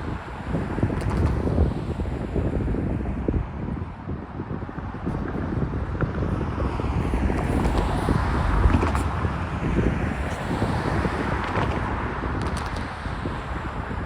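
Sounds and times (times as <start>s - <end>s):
wind on microphone: 0.0s - 14.0s
steel wheels rumbling on rail: 5.2s - 12.0s.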